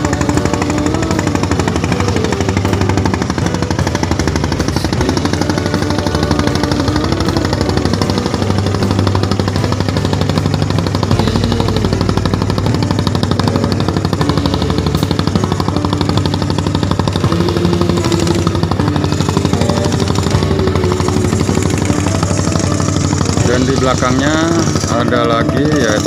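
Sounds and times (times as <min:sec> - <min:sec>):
boat engine knocking beat: 0:00.0 - 0:26.0.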